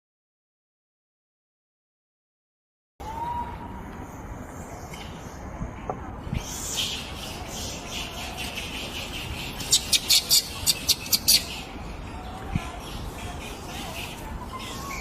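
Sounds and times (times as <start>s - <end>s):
bird chirping: 6.4s - 11.8s.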